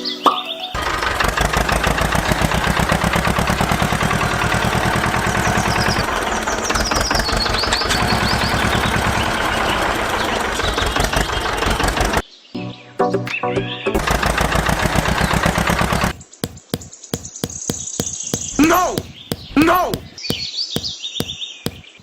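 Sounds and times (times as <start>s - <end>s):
small engine running steadily: 0.8s - 12.2s, 14.0s - 16.8s.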